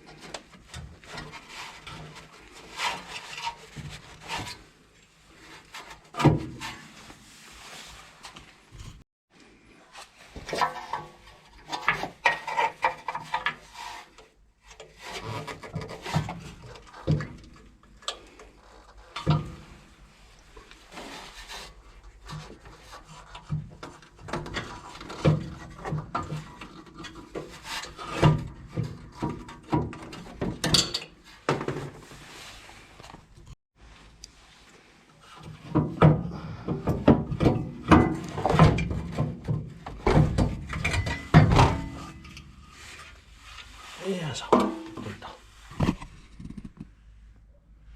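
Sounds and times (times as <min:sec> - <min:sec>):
tools scraping and knocking metal: 0:10.4 - 0:19.9, 0:21.1 - 0:32.2, 0:35.4 - 0:43.8.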